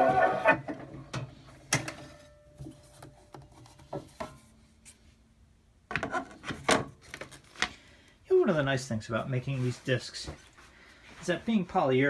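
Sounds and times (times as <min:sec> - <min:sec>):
brass band on phonograph: 0:00.0 - 0:00.7.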